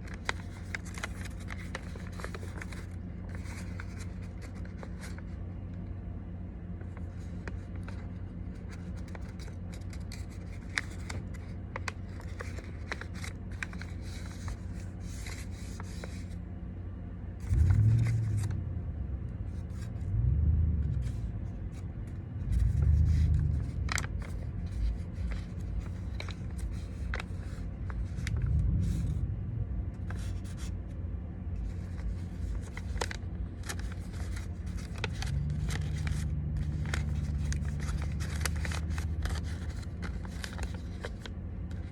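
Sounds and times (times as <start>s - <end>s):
paper being folded and creased: 0.0s - 5.7s, 6.8s - 16.4s, 17.4s - 18.6s, 19.4s - 20.1s, 20.7s - 29.3s, 29.9s - 30.8s, 31.6s - 41.9s
low hum: 0.0s - 41.9s
low rumbles: 17.3s - 41.9s.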